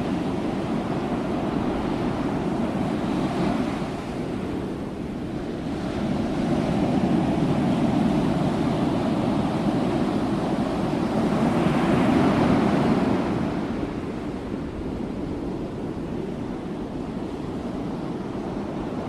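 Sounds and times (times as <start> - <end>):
ocean waves breaking on shore: 0.0 - 19.0.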